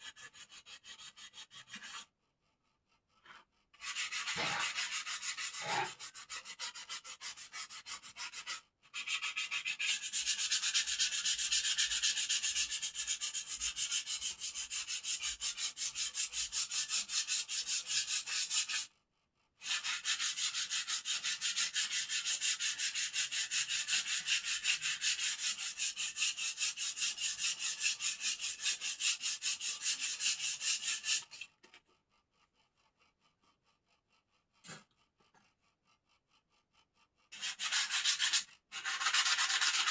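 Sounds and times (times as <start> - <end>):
wood being sanded by hand: 0.0 - 2.1, 3.8 - 18.9, 19.6 - 31.4, 37.3 - 39.9.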